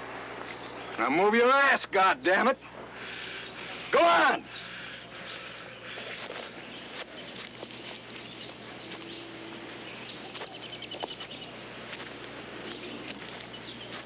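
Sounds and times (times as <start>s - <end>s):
birds chirping: 0.0s - 14.0s
low hum and hiss: 0.0s - 14.0s
bird trill: 8.2s - 11.6s.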